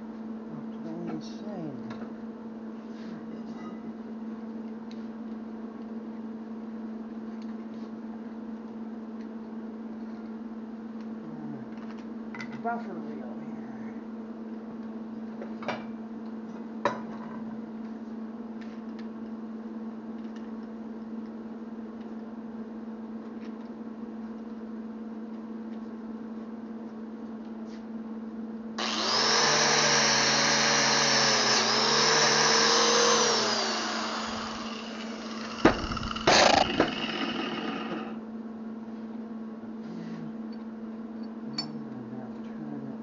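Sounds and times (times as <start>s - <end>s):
steady hum: 28.7s - 38.9s
electric grinder running: 28.8s - 38.2s
sharp knocks: 35.6s - 37.0s.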